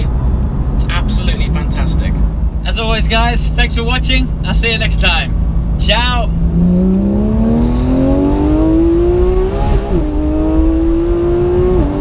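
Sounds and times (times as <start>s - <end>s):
car engine accelerating: 5.3s - 12.0s.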